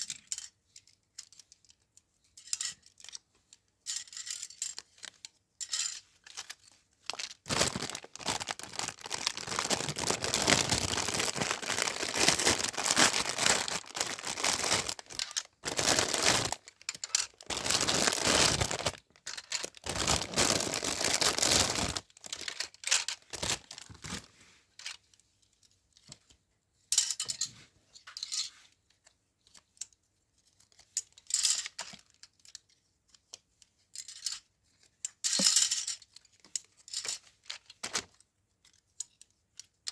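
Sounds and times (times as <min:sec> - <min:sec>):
packaging tearing and rustling: 0:07.1 - 0:24.3.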